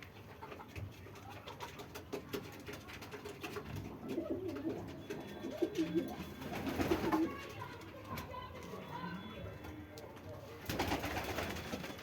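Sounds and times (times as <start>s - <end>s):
pigeon cooing: 4.0s - 7.3s.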